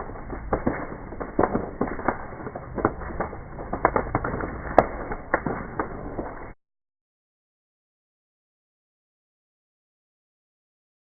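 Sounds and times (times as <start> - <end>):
bonfire crackling and popping: 0.0 - 6.6
sharp fire crack: 0.0 - 6.6.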